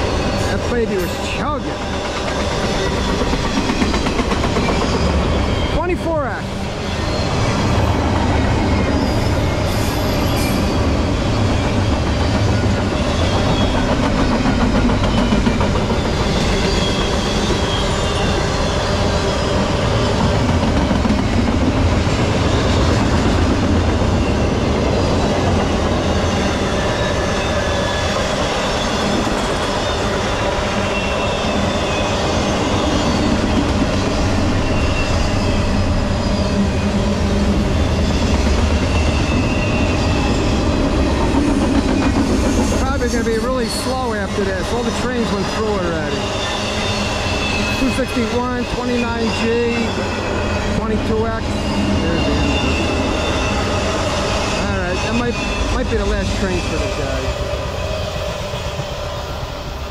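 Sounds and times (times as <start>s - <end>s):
freight train wheels rumbling on rail: 0.0s - 59.9s
wheels clacking over rail joints: 7.4s - 35.1s
faint high wheel squeals: 15.1s - 20.2s, 26.2s - 33.5s, 34.5s - 40.6s, 42.0s - 59.4s.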